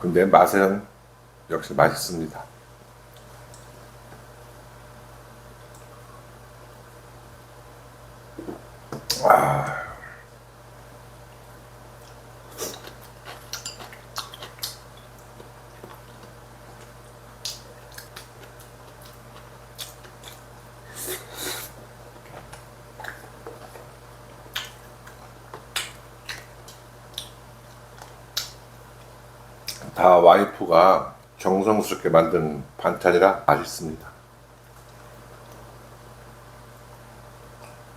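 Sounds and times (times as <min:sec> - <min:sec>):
steady low hum: 0:00.0 - 0:37.9
chewing: 0:11.4 - 0:29.9.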